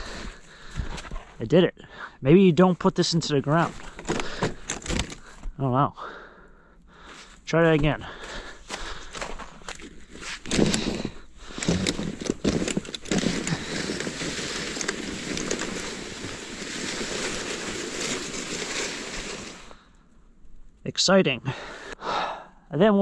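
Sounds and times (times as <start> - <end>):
sled crunching in snow: 2.7 - 5.4, 7.2 - 19.9
sled sliding hiss: 11.6 - 19.8.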